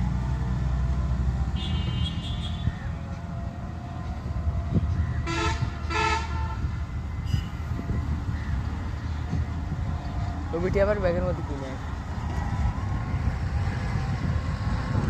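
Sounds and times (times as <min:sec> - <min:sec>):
low engine rumble: 0:00.0 - 0:15.0
horn blasts: 0:05.2 - 0:07.5.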